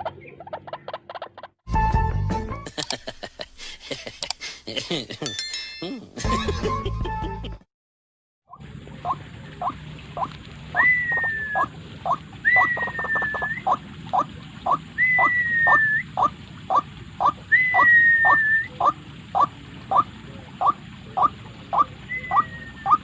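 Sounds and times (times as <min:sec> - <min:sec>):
waterhen calling: 0:08.5 - 0:23.0.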